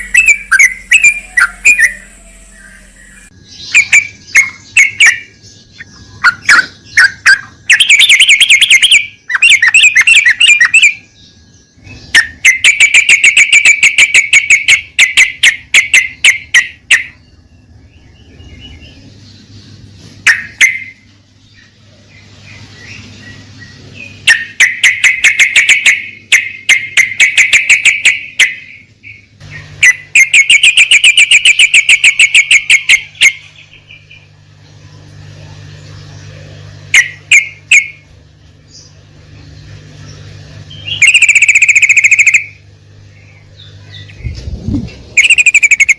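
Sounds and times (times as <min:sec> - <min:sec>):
bird chattering song: 0:00.0 - 0:45.9.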